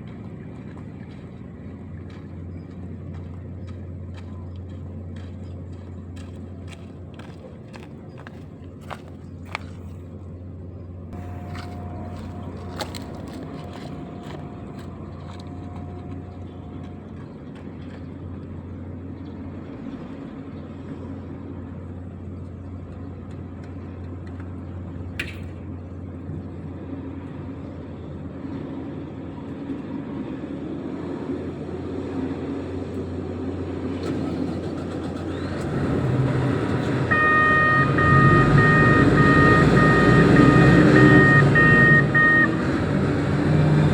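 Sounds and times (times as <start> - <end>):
heavy diesel engine running: 0.0 - 43.9
warning alarm beeping: 11.2 - 16.7, 36.8 - 43.0.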